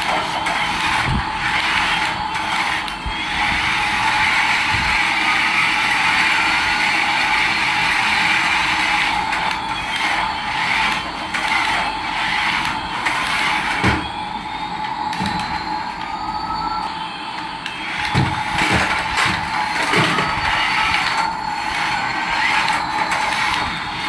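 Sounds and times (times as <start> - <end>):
toy motor and gears whirring: 0.0 - 24.0.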